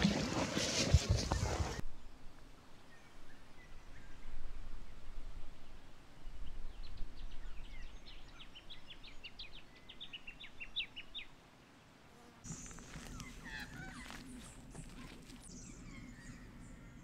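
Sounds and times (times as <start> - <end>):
outdoor background noise: 0.0 - 17.0
small bird singing: 12.5 - 17.0.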